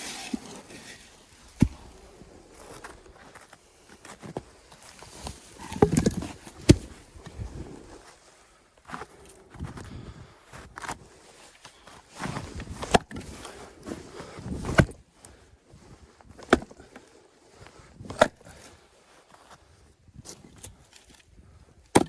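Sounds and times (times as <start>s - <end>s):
axe striking firewood: 1.4s - 2.1s, 5.6s - 7.0s, 12.8s - 13.3s, 14.6s - 15.0s, 16.4s - 16.8s, 18.1s - 18.4s.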